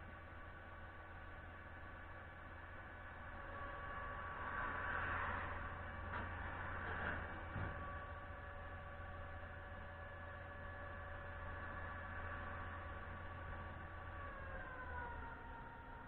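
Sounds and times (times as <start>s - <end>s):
concrete pump truck running: 5.4s - 16.0s.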